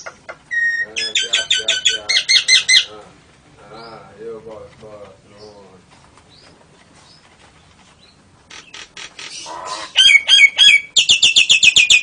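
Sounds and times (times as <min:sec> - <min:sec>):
bird squawks: 0:00.0 - 0:03.0, 0:08.5 - 0:12.0
fast high bird chatter: 0:00.0 - 0:03.0, 0:08.0 - 0:12.0.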